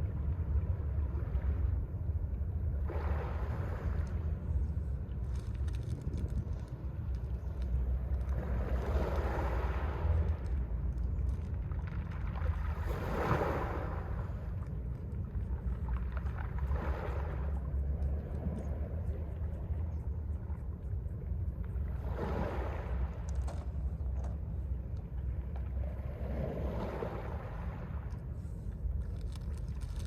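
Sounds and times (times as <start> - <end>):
low wind rumble on microphone: 0.0 - 30.0
sea waves breaking on pebble beach: 12.4 - 14.1
pebbles clicking: 29.0 - 30.0.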